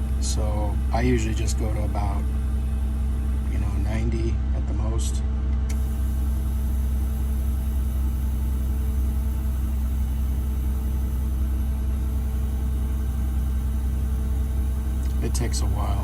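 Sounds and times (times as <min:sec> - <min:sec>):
bus engine idling: 0:00.0 - 0:16.0
air suspension filling: 0:05.7 - 0:16.0.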